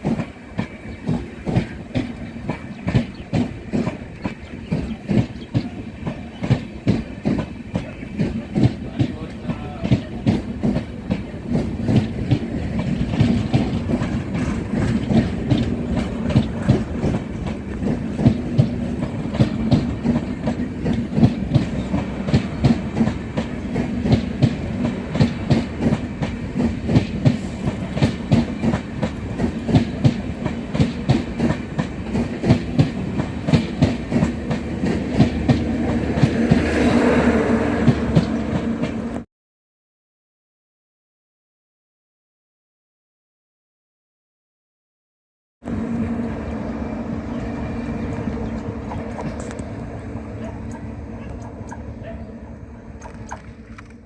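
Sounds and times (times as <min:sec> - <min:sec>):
train wheels clattering: 0:00.0 - 0:37.0, 0:37.8 - 0:39.2
train rumble and hum: 0:00.0 - 0:39.3, 0:45.6 - 0:54.0.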